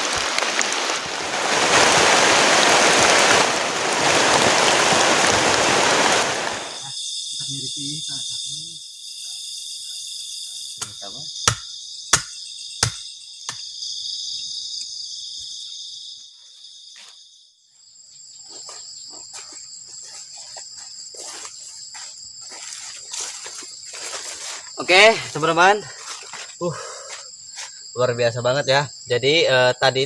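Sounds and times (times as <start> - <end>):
insects chirping chorus: 0.0 - 30.0
sharp knocks: 10.8 - 13.6.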